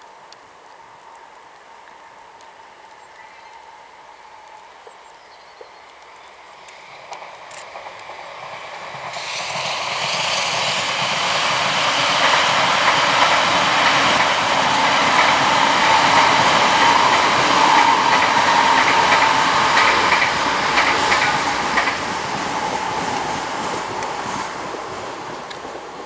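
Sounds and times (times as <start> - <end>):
train passing: 6.3 - 26.0.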